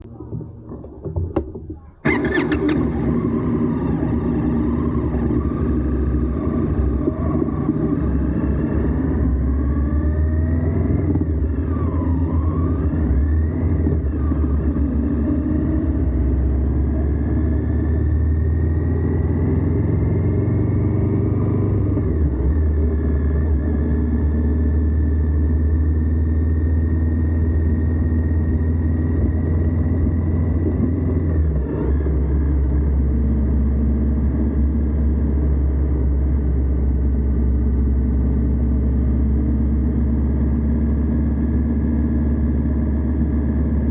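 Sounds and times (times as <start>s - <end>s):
motorcycle engine running: 0.0s - 43.9s
road noise: 0.0s - 43.9s.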